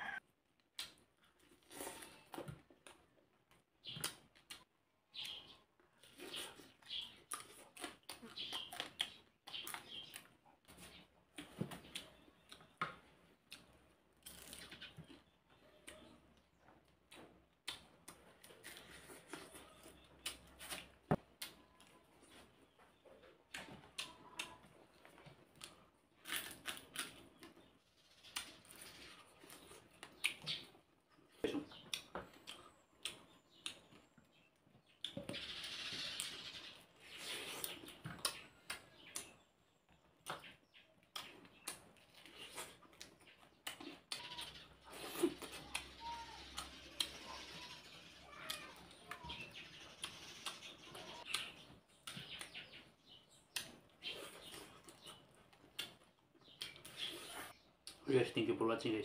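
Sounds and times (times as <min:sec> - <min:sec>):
chewing and lip-smacking: 0:40.2 - 0:47.3, 0:50.0 - 0:58.0.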